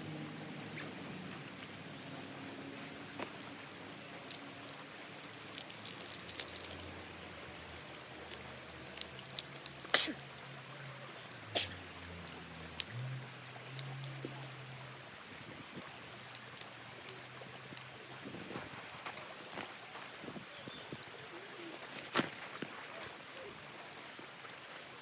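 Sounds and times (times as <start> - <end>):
light clicks and rattles: 3.1 - 11.4, 12.2 - 13.1, 16.1 - 17.9, 18.5 - 24.0.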